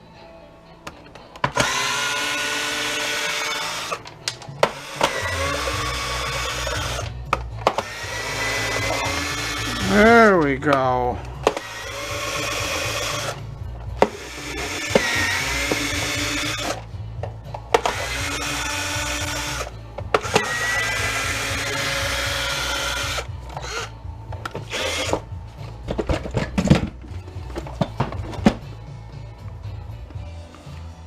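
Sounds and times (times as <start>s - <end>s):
electric drill driver running: 1.5s - 10.1s, 11.4s - 13.4s, 14.0s - 16.9s, 17.7s - 25.2s
clicks and knocks of parts handled: 3.9s - 5.2s.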